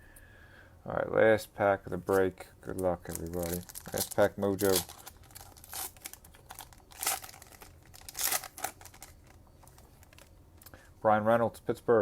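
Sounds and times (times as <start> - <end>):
foil wrapper tearing and crinkling: 3.0 - 10.3.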